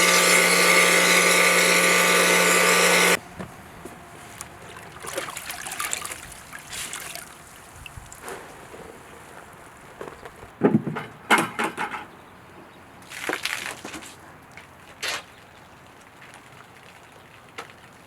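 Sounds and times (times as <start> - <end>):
electric machine humming and hissing: 0.0 - 3.2.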